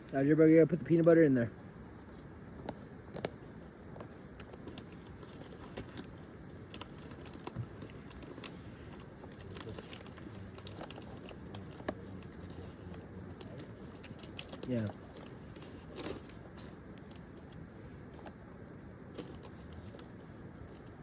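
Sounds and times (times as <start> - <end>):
low background noise: 0.0 - 21.0.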